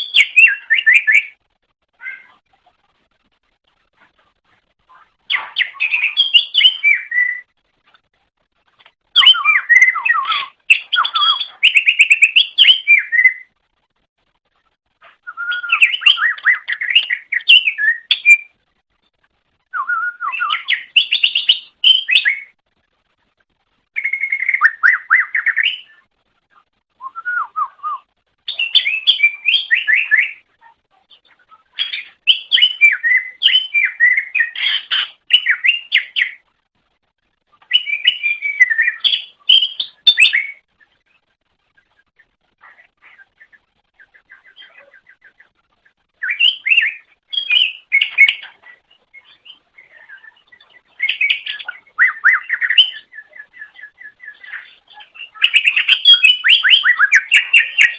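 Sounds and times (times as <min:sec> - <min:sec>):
bird singing whistles and chatter: 0:00.0 - 0:01.4, 0:05.3 - 0:07.5, 0:09.1 - 0:13.5, 0:15.2 - 0:18.6, 0:19.7 - 0:22.6, 0:24.0 - 0:26.0, 0:27.0 - 0:30.5, 0:31.2 - 0:36.4, 0:37.6 - 0:41.0, 0:46.2 - 0:57.9.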